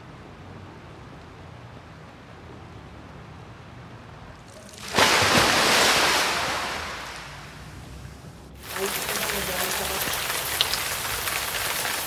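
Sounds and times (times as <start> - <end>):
light steady rain: 0.0 - 12.0
rainwater pouring from drainpipe: 8.6 - 12.0.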